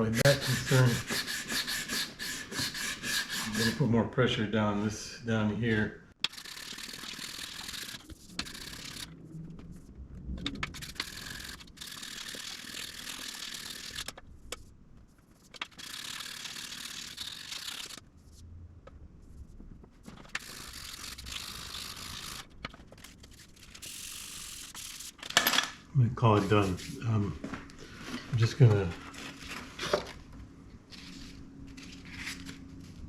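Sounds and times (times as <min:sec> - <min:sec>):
sandpaper scraping wood: 0:00.0 - 0:03.9, 0:26.3 - 0:27.2.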